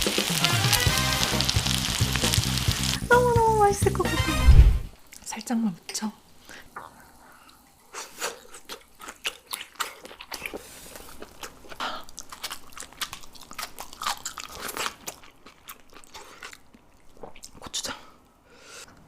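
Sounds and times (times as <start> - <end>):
person chewing crunchy food: 8.4 - 17.6.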